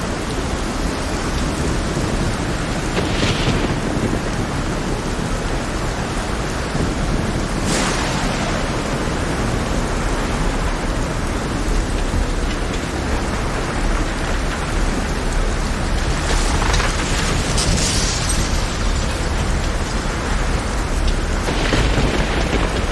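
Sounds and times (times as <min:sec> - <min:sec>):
deep thunder rumble: 0:00.0 - 0:22.9
heavy rain pouring: 0:00.0 - 0:22.9.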